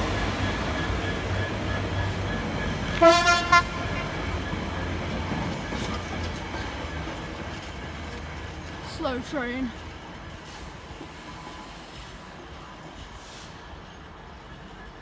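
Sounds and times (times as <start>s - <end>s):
train rumbling: 0.0s - 15.0s
train horn toot: 2.9s - 4.2s.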